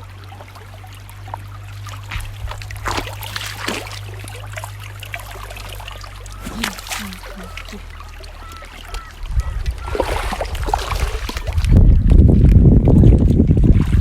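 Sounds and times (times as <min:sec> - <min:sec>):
water trickling: 0:00.0 - 0:14.0
wind buffeting microphone: 0:02.1 - 0:03.3, 0:08.9 - 0:14.0
faint short voices: 0:06.4 - 0:09.1.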